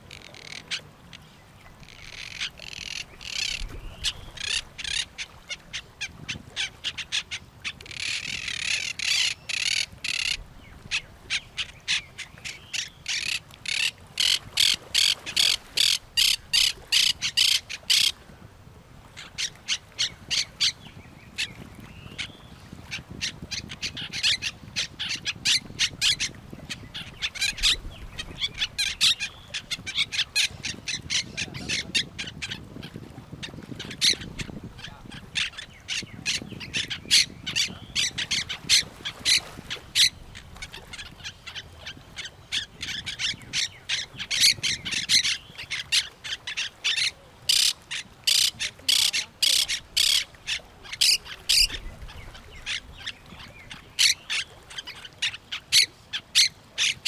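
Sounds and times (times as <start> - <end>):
parrots squawking: 1.9 - 5.1, 7.9 - 10.4, 12.7 - 18.1, 42.2 - 51.8.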